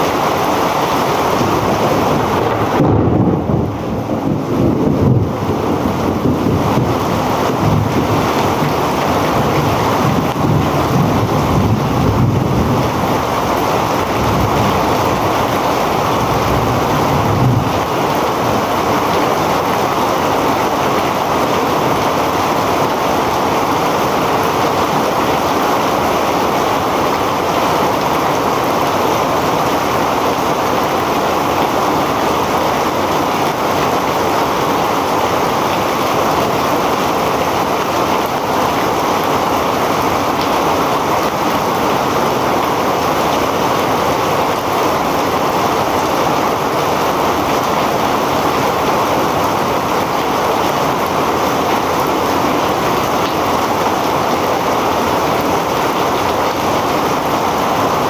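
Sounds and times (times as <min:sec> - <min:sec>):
heavy rain pouring: 0:00.0 - 0:58.0
low rumble: 0:01.4 - 0:18.2.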